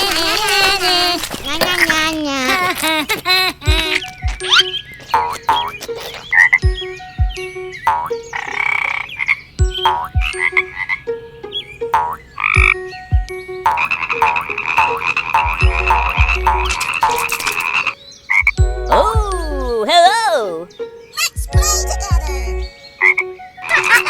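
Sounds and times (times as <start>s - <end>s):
frogs croaking: 0.0s - 19.8s, 20.6s - 24.0s
low thuds: 3.7s - 5.5s, 6.6s - 8.1s, 12.6s - 14.4s, 15.4s - 17.2s, 18.4s - 19.7s, 21.4s - 22.7s.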